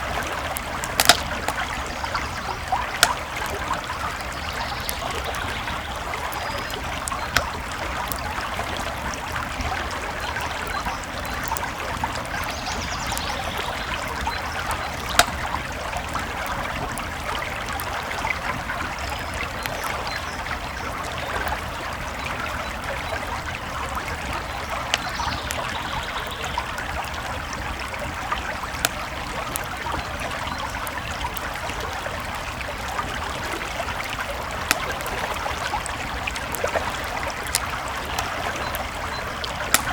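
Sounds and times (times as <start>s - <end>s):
sharp fire pops: 0.0s - 8.5s, 9.5s - 19.8s, 33.0s - 39.9s
campfire crackling: 0.0s - 39.9s
creek flowing: 0.0s - 39.9s.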